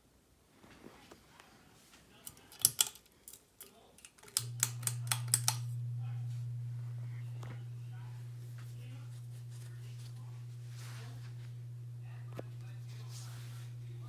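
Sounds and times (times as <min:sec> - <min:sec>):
sharp clicks: 0:02.3 - 0:05.7
ceiling fan motor humming: 0:03.7 - 0:14.0.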